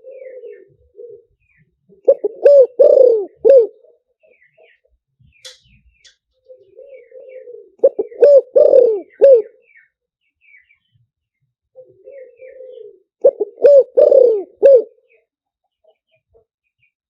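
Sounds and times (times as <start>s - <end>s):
dove cooing: 0.0s - 4.8s, 6.4s - 9.8s, 11.7s - 15.2s.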